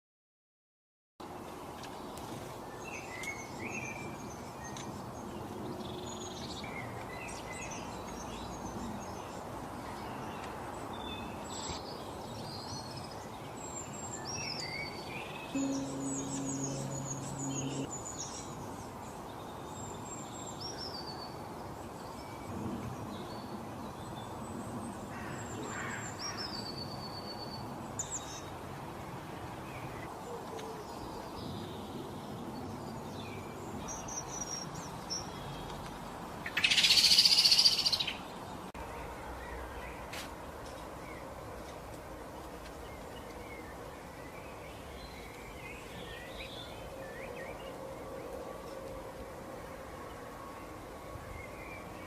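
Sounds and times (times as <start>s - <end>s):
outdoor background hiss: 1.2s - 52.0s
small birds chirping: 1.8s - 21.4s
low steady tone: 15.6s - 17.9s.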